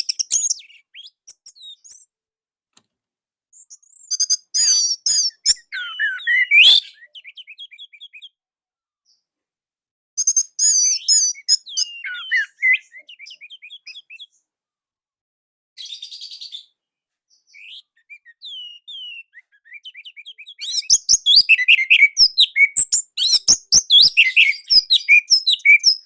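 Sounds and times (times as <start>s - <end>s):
thrush singing whistled phrases: 3.6s - 8.4s, 10.2s - 14.4s, 17.5s - 26.0s.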